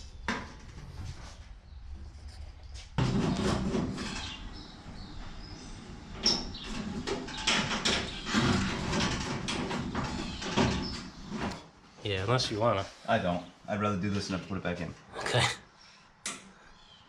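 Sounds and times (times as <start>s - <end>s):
metal panels scraping and clattering: 3.0s - 11.6s.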